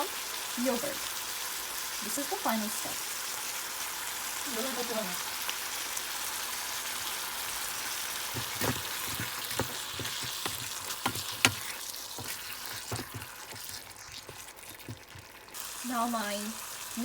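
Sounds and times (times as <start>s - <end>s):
food sizzling in a frying pan: 0.0s - 17.0s
spoon scraping a pan: 7.8s - 15.6s.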